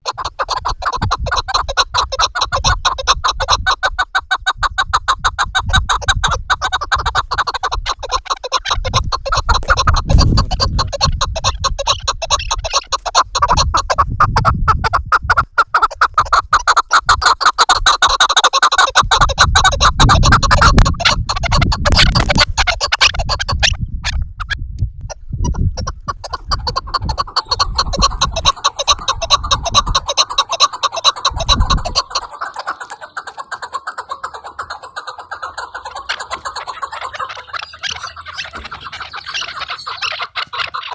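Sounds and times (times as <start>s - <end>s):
partridges clucking: 26.0s - 40.9s.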